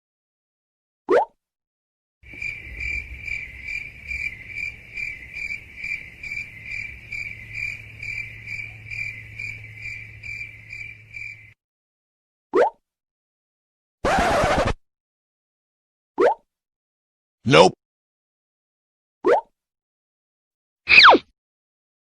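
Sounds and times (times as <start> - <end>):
crickets chirping: 2.3 - 11.6.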